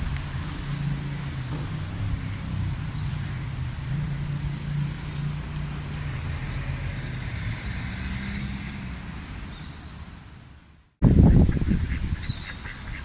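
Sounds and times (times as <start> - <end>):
vehicle engine humming: 0.0 - 10.4
road noise: 0.0 - 13.0.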